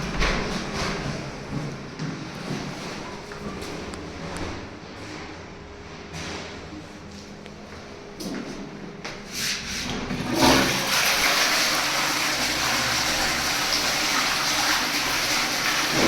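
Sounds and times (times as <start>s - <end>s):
toilet flush water rushing: 9.3s - 16.0s.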